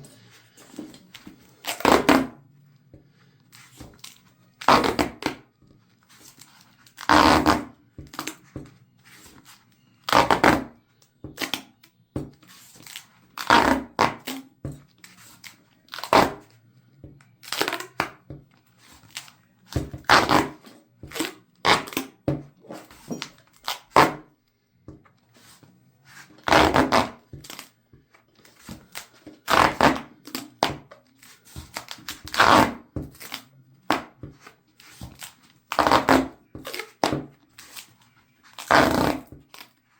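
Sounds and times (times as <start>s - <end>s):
duct tape ripping: 1.6s - 2.4s, 3.7s - 5.4s, 6.3s - 8.4s, 15.4s - 16.4s, 20.0s - 22.2s, 23.2s - 24.2s, 26.4s - 27.7s, 28.5s - 34.1s, 34.9s - 39.8s.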